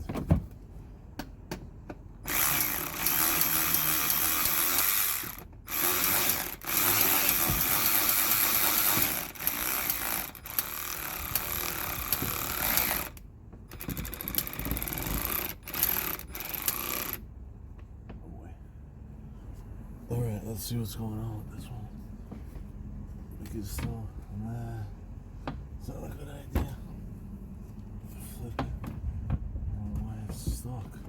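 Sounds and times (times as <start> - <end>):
ratchet wrench clicking: 2.3 - 17.2.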